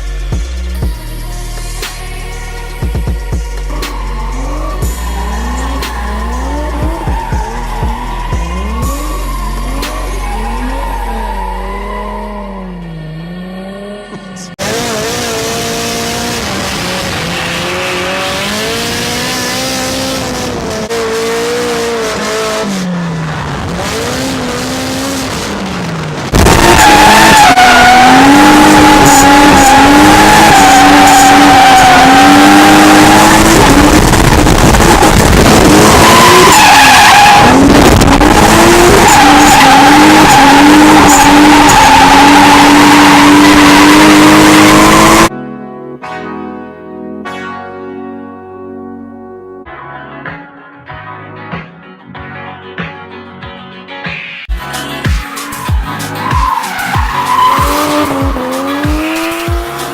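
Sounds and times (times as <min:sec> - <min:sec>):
car engines revving hard: 0:03.6 - 0:12.4, 0:13.2 - 0:45.3, 0:55.5 - 0:59.9
tyres squealing and skidding: 0:03.6 - 0:12.9, 0:26.3 - 0:45.3, 0:54.8 - 0:59.9.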